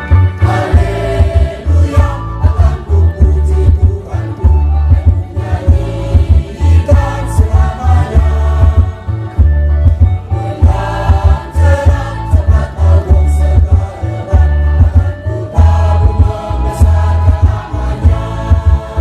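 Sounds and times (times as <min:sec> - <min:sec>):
church choir singing: 0:00.1 - 0:09.6, 0:10.3 - 0:19.0
frame drums beating: 0:00.1 - 0:19.0.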